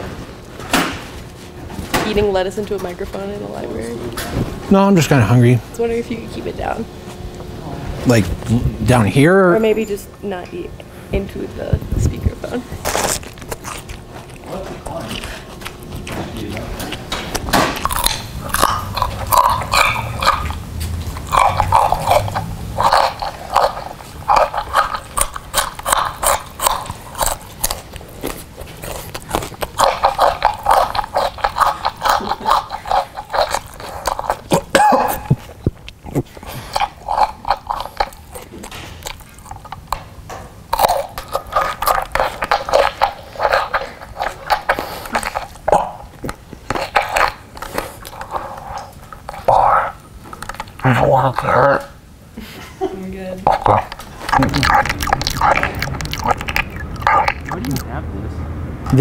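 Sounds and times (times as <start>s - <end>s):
crunching through a megaphone: 53.4s - 57.9s.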